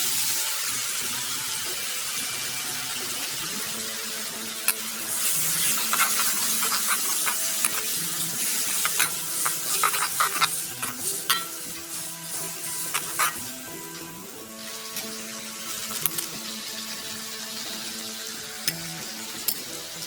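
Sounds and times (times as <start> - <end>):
food sizzling in hot oil: 0.0 - 19.9
utensil scraping and clinking pan: 4.7 - 13.6.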